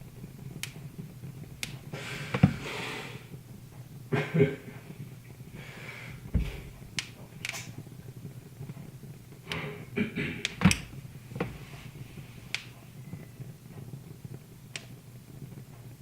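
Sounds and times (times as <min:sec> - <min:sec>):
low steady hum: 0:00.0 - 0:16.0
wood fire crackling: 0:00.0 - 0:16.0.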